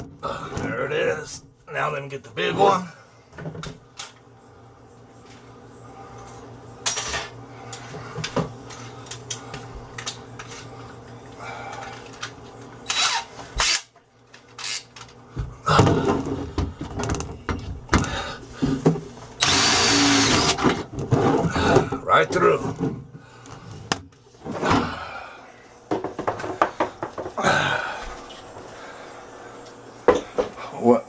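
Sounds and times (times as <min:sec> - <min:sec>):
electric drill boring through iron: 0:19.4 - 0:20.7.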